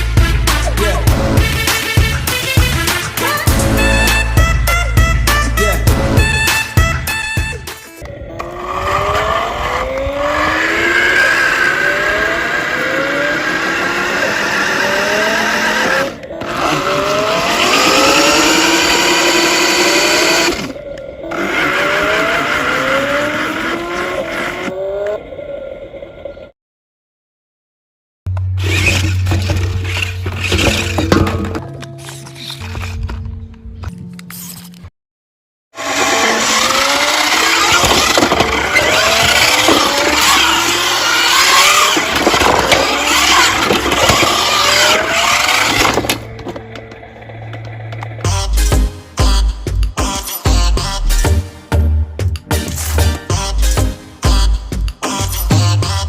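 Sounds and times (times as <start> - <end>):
tyres skidding: 0.2 - 25.5, 28.4 - 33.4, 35.8 - 48.9
toy car motors whining: 8.0 - 24.8, 28.6 - 30.9, 35.8 - 48.4.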